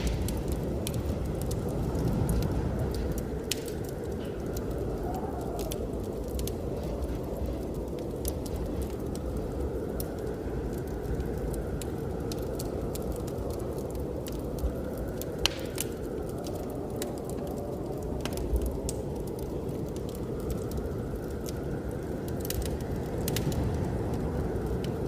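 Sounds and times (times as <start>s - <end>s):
sharp pops of fire: 0.0s - 13.4s, 14.2s - 17.5s
blizzard wind: 0.0s - 25.0s
wood fire crackling: 0.0s - 25.0s.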